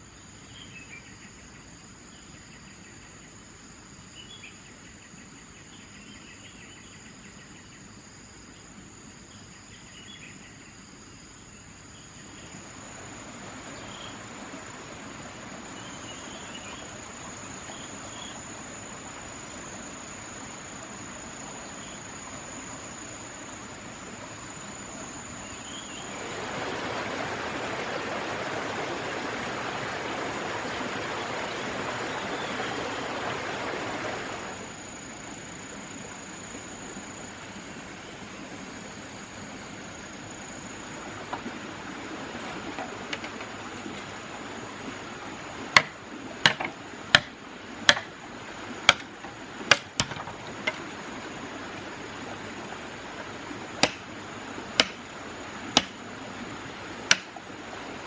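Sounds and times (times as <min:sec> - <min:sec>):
insect trill: 0:00.0 - 0:58.0
rushing noise: 0:26.0 - 0:35.0.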